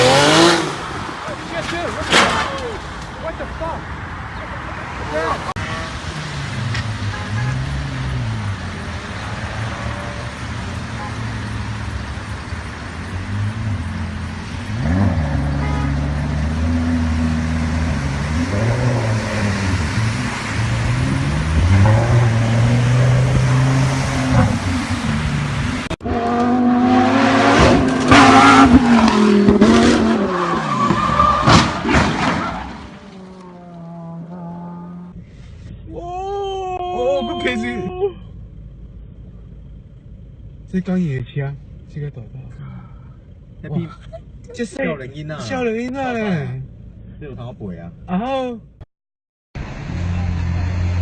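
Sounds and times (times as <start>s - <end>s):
car engine revving: 0.0s - 1.1s, 4.8s - 35.2s
harsh car engine: 0.0s - 2.2s, 4.6s - 35.8s
tire squeal: 30.0s - 35.1s.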